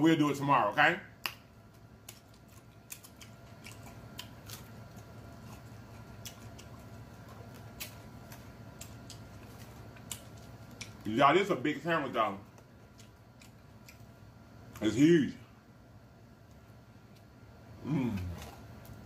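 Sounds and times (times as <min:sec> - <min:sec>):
person chewing food: 0:01.2 - 0:11.1, 0:12.4 - 0:14.8, 0:18.0 - 0:19.0.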